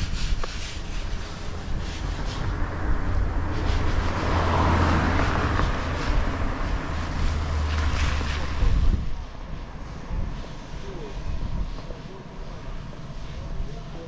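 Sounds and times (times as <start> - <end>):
broad rushing sound: 0.0 - 14.0
wind buffeting microphone: 0.0 - 14.0.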